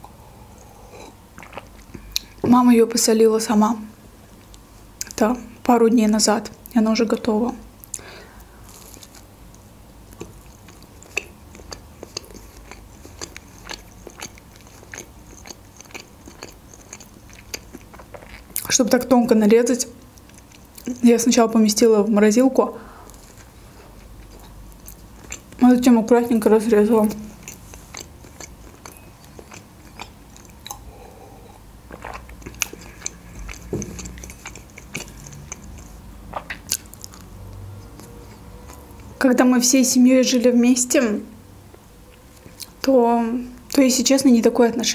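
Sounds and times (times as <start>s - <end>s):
person chewing with mouth clicks: 0.0s - 2.4s, 7.8s - 18.7s, 20.0s - 21.0s, 23.0s - 25.6s, 27.0s - 39.2s, 41.7s - 42.9s
wet mouth clicks and smacks: 31.9s - 37.2s.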